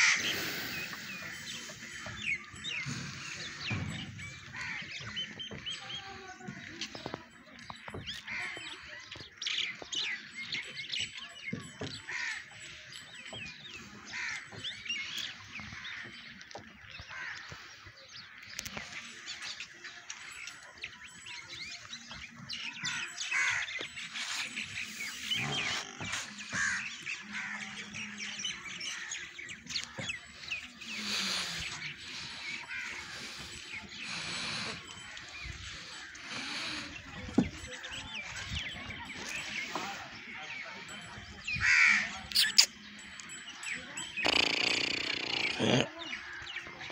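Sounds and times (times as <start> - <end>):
birds chirping and calling: 0.0 - 46.9.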